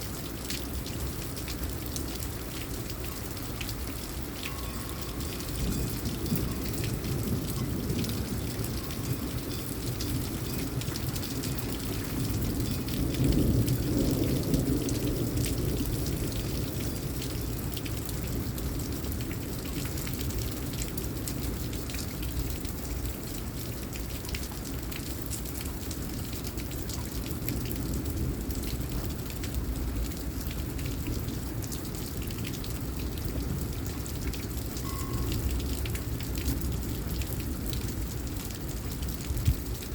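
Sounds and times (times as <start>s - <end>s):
steady rain: 0.0s - 39.9s
low thunder rumble: 5.2s - 17.2s.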